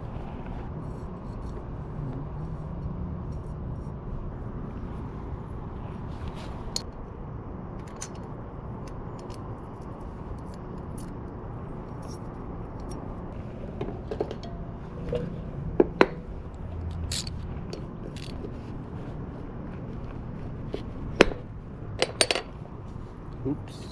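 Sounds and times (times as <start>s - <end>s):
low background hum: 0.0s - 23.9s
metal engine parts clinking: 13.9s - 18.5s, 22.0s - 22.5s.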